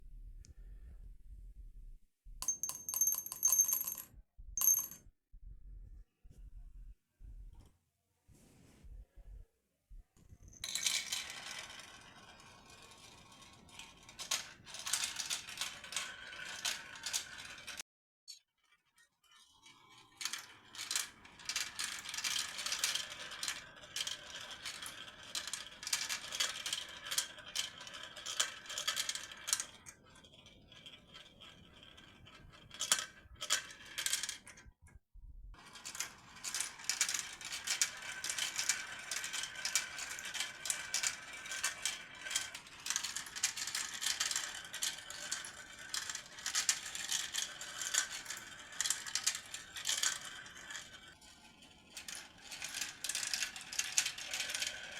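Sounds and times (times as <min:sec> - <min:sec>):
marbles clattering through a run: 0:35.9 - 0:51.1, 0:51.9 - 0:54.9.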